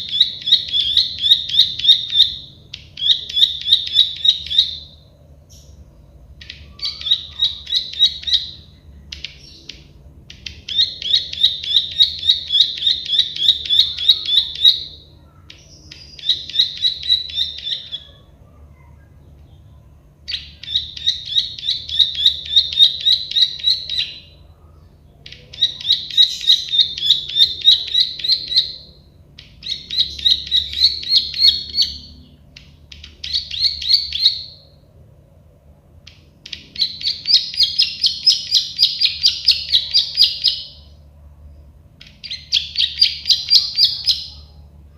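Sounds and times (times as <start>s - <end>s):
bird singing sharp clicking notes: 36.0s - 37.2s.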